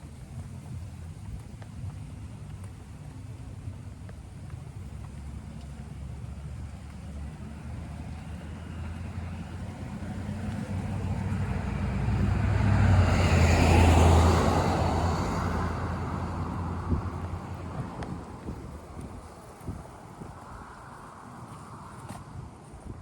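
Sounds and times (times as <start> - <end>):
car driving past: 6.7 - 18.8.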